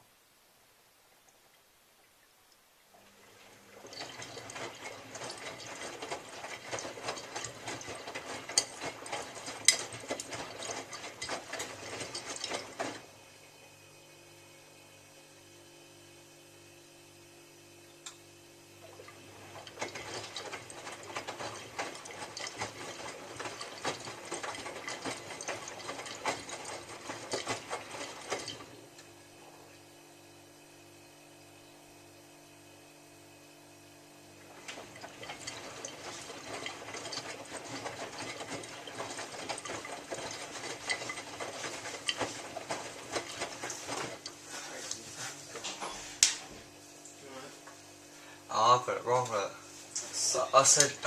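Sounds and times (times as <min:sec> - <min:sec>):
washing machine drum tumbling laundry: 0:03.0 - 0:13.1, 0:18.8 - 0:29.0, 0:34.4 - 0:46.7, 0:48.8 - 0:51.0.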